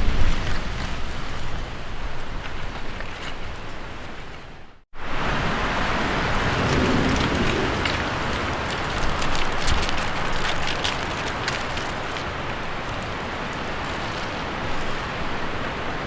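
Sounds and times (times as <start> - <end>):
steady rain: 0.0 - 16.0
rolling thunder: 5.3 - 11.7.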